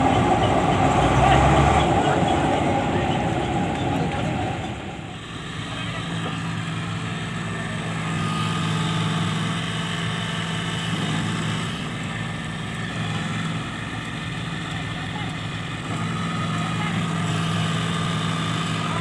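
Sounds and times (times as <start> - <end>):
diesel farm machinery engine running: 0.0 - 19.0.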